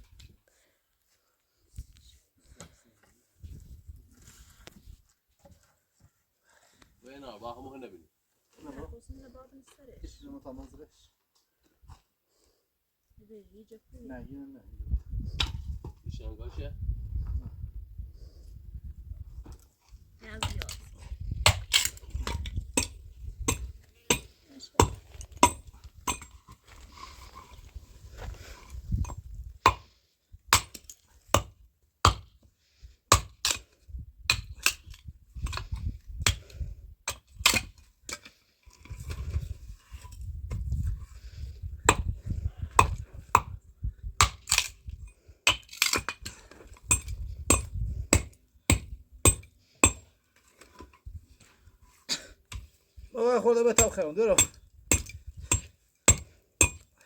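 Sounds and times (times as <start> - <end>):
tools striking wood: 53.8 - 56.9.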